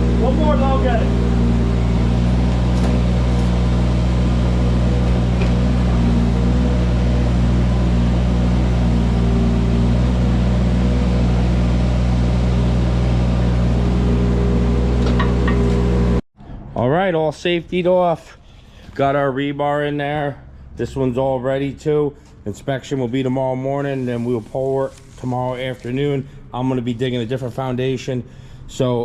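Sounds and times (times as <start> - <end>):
excavator engine droning: 0.0 - 16.2.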